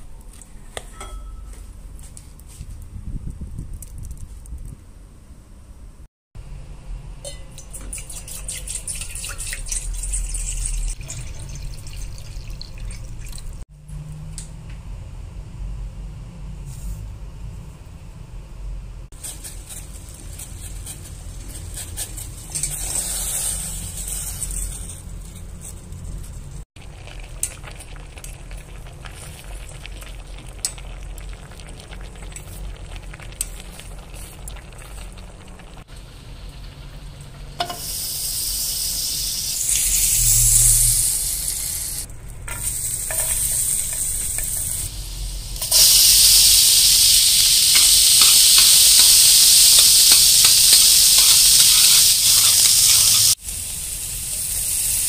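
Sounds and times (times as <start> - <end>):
metal utensil stirring: 7.3 - 13.3, 19.2 - 26.6, 42.4 - 44.9, 47.7 - 53.4
water boiling in a pot: 7.3 - 13.6, 19.2 - 25.2, 26.4 - 55.0
onions frying with loud sizzle: 19.2 - 25.2, 26.5 - 55.0
butter sizzling in a pan: 37.6 - 55.0.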